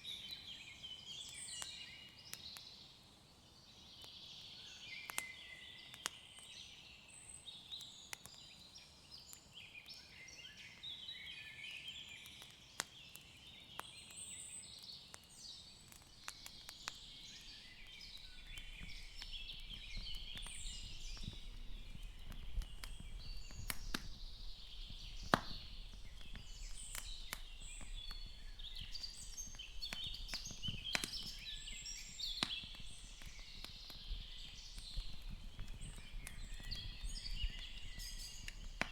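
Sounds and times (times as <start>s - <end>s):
sharp clicks and pops: 15.2s - 38.9s
birds chirping and singing: 16.2s - 38.9s.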